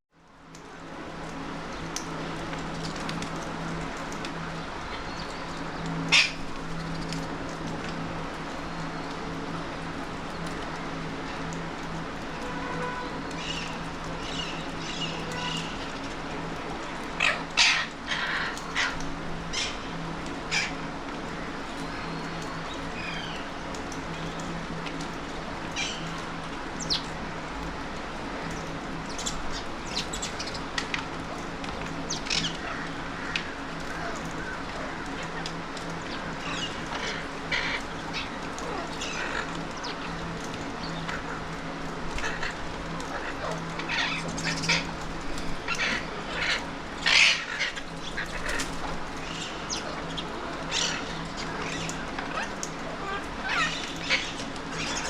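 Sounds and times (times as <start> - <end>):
steady low background hum: 0.2 - 55.0
parakeets calling: 4.9 - 6.4, 13.3 - 16.0, 17.0 - 23.5, 25.7 - 26.2, 32.0 - 55.0.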